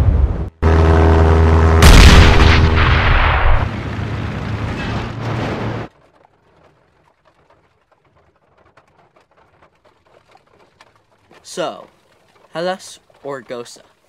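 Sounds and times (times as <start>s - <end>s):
plane engine drone: 0.0s - 4.6s
explosion: 1.7s - 5.9s.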